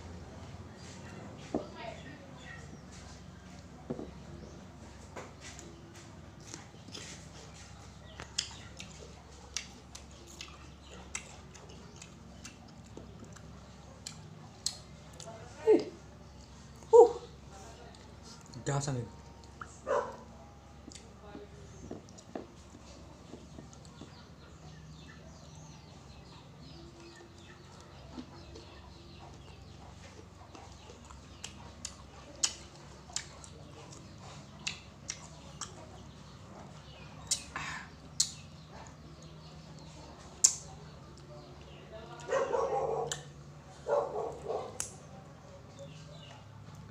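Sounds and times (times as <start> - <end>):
biting and chewing crunches: 5.0 - 15.3, 26.8 - 45.1
wet mouth smacks and clicks: 37.2 - 37.5, 38.1 - 38.4.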